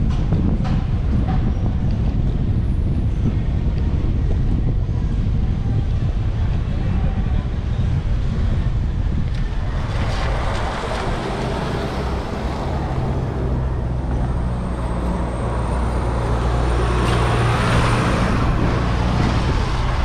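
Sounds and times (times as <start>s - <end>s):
street traffic: 0.0s - 20.0s
vehicle engine hum: 0.0s - 20.0s
wind noise on microphone: 0.0s - 20.0s.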